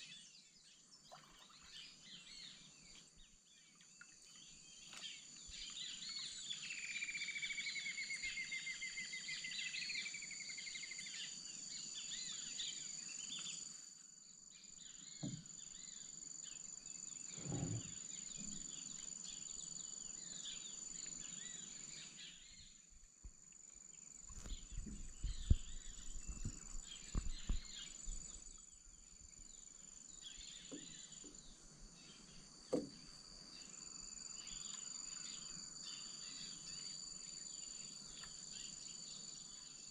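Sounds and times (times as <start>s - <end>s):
low knocks and thumps: 17.3s - 18.0s, 24.4s - 28.5s
bird calls: 24.3s - 29.0s.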